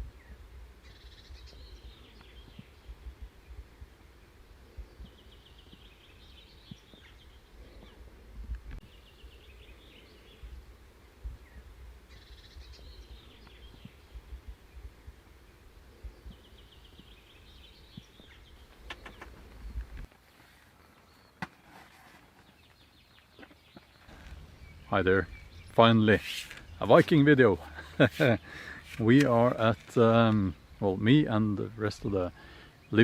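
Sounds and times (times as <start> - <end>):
songbird trilling: 22.6 - 27.0.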